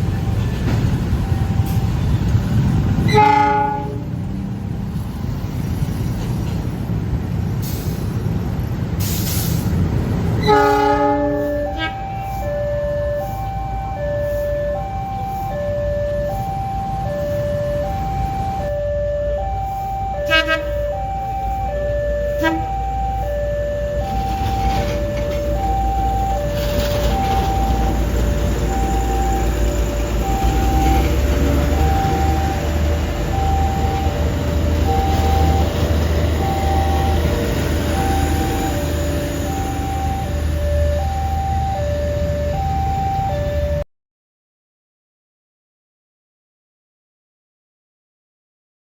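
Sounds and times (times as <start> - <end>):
train rumbling past: 0.0 - 18.8, 19.4 - 43.8
train horn: 3.0 - 4.2, 10.4 - 12.4, 20.2 - 20.8, 22.3 - 22.8
train hisses: 7.6 - 8.2, 9.0 - 9.8
two-tone level crossing alarm: 10.5 - 43.9.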